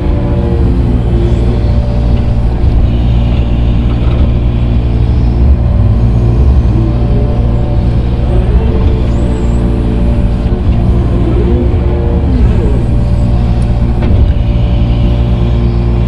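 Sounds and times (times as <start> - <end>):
diesel engine under load: 0.0 - 16.0.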